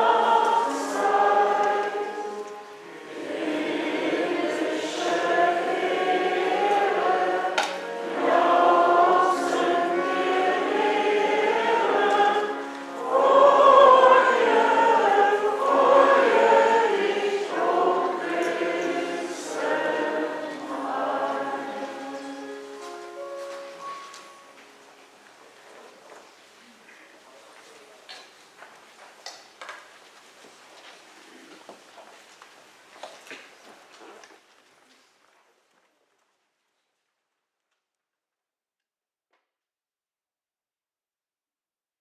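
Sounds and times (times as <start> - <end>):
choir singing a hymn: 0.0 - 24.0.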